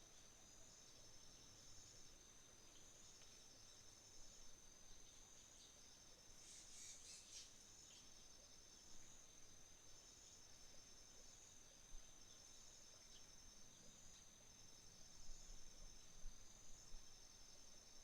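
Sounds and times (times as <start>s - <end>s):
continuous high insect trill: 0.0s - 18.0s
pulsed insect trill: 6.4s - 7.6s.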